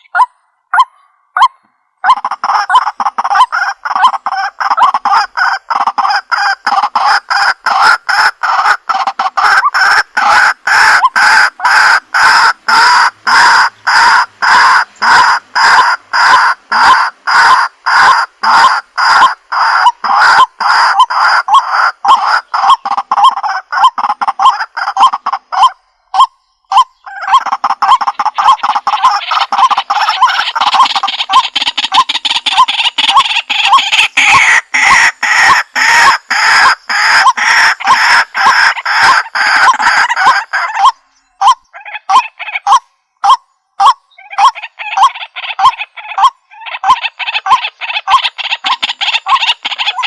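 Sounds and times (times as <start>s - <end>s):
waterhens calling: 0.0s - 50.0s.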